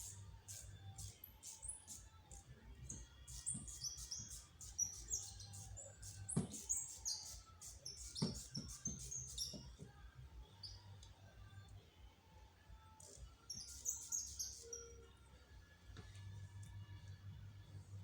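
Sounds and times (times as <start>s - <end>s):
small birds chirping: 0.0s - 11.1s, 12.9s - 15.2s.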